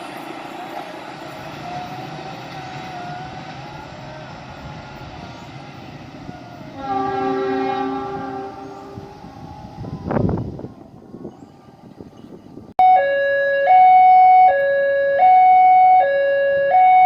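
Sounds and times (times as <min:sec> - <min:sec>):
train rumbling: 0:00.0 - 0:12.8
locomotive horn: 0:06.7 - 0:10.4, 0:12.8 - 0:17.0.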